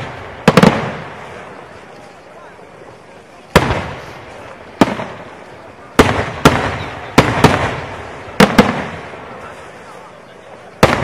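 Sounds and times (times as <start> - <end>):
firework shells booming: 0.0 - 1.7, 3.5 - 9.4, 10.8 - 11.0
rolling echo: 0.0 - 11.0.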